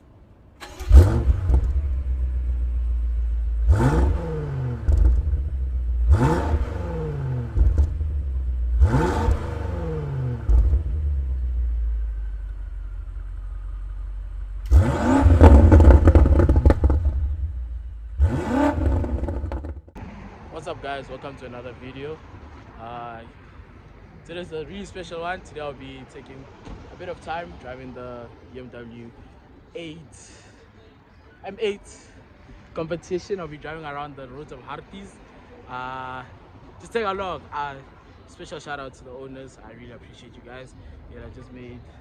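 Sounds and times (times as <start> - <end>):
car exhaust revving and idling: 0.7 - 20.1.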